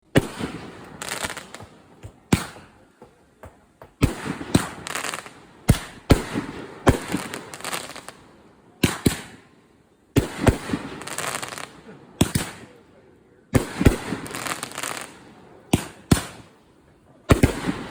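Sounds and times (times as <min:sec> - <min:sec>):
firework bangs: 0:00.0 - 0:08.2, 0:08.8 - 0:09.4, 0:10.1 - 0:12.8, 0:13.5 - 0:16.5, 0:17.3 - 0:17.9
firework crackling: 0:00.1 - 0:02.8, 0:03.9 - 0:08.2, 0:10.2 - 0:12.7, 0:13.6 - 0:16.5, 0:17.3 - 0:17.9.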